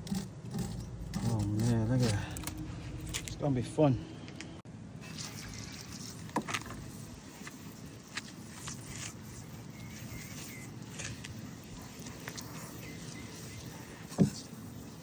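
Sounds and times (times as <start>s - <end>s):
low rumble: 0.8s - 4.6s.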